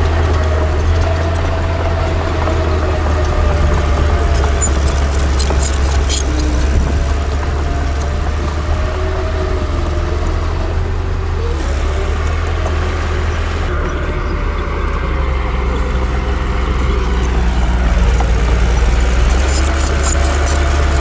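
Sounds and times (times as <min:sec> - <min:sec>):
heavy diesel engine running: 0:00.0 - 0:21.0
sharp metallic clicks: 0:03.8 - 0:08.6, 0:18.0 - 0:21.0.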